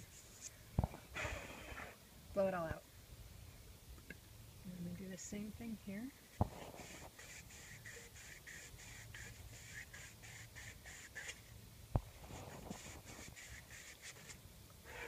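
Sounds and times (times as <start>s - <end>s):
sandpaper rubbing on plastic pipe: 6.3s - 11.6s, 12.2s - 15.0s.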